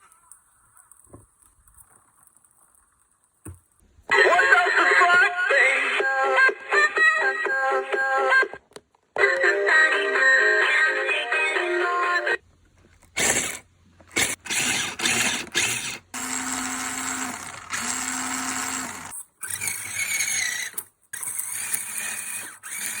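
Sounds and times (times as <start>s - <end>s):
toy motorbike motor whirring: 13.1s - 23.0s.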